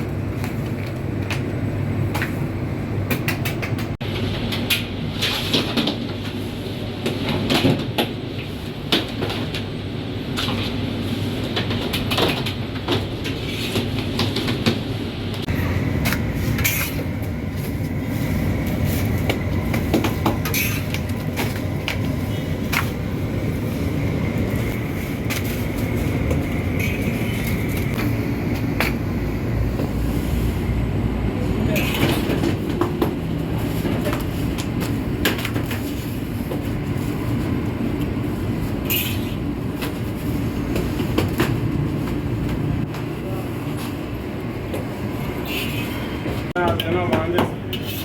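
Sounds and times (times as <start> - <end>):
motor hum and high whine: 0.0 - 46.5
machinery rumbling: 11.4 - 46.6.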